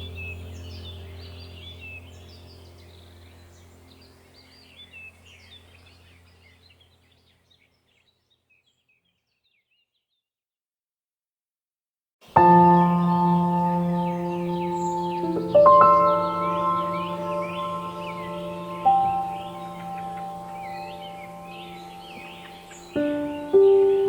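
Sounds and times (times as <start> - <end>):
low steady drone: 0.0 - 6.8, 12.5 - 24.0
songbirds chirping: 0.0 - 10.3, 12.2 - 24.0.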